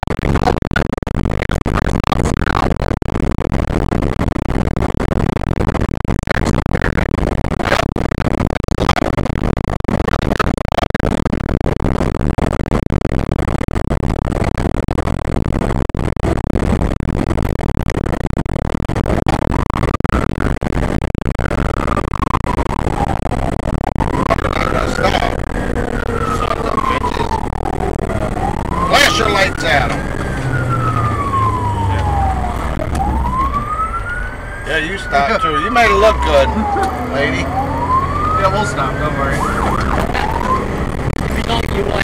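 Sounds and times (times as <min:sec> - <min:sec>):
siren wailing: 0:21.5 - 0:42.0
fire engine running: 0:24.0 - 0:42.0.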